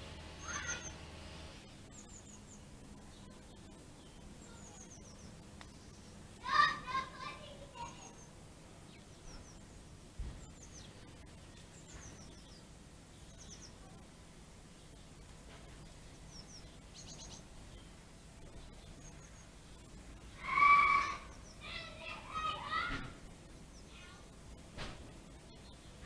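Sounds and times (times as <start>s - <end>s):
low background hum: 0.0s - 26.0s
small birds chirping: 0.0s - 26.0s
child calling out: 0.4s - 0.9s, 6.4s - 8.2s, 20.4s - 23.1s.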